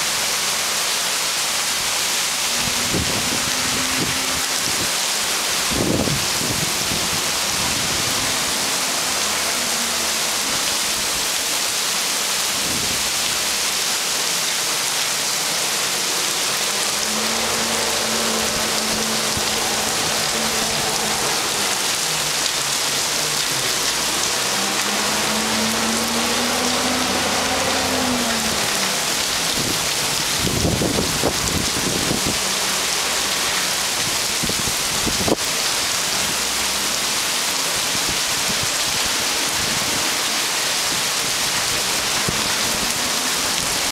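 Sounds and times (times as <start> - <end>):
heavy rain pouring: 0.0 - 43.9
truck engine humming: 2.3 - 11.6, 15.2 - 34.0
garbage truck approaching: 15.4 - 34.3.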